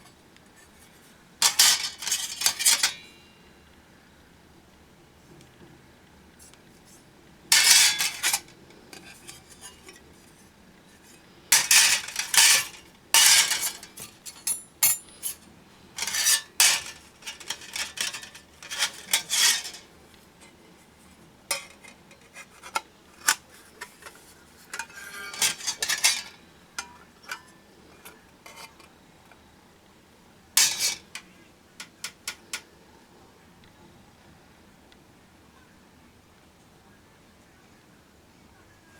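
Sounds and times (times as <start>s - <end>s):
sheet metal parts clinking: 1.4s - 3.1s, 7.5s - 10.0s, 11.5s - 15.4s, 16.0s - 19.9s, 21.5s - 27.6s, 30.6s - 32.6s.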